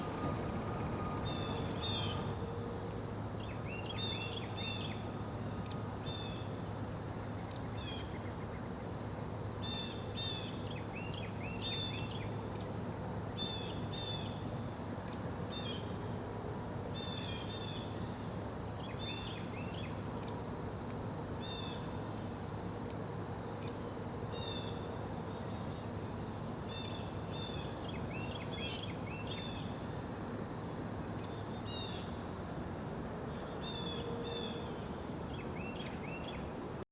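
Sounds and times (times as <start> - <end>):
small birds chirping: 0.0 - 2.3
insects droning: 0.0 - 12.6
low background hum: 0.0 - 36.8.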